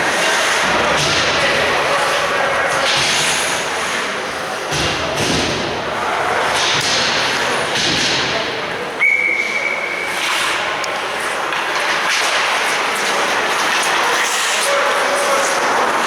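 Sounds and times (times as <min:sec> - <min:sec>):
ice hockey play: 0:00.0 - 0:16.0
referee's whistle: 0:09.0 - 0:10.0.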